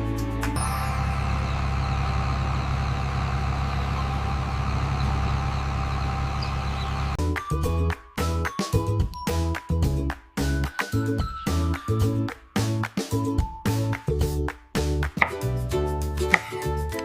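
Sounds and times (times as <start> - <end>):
music: 0.0 - 1.6, 7.2 - 17.0
tractor engine idling: 0.6 - 7.2, 16.3 - 16.8.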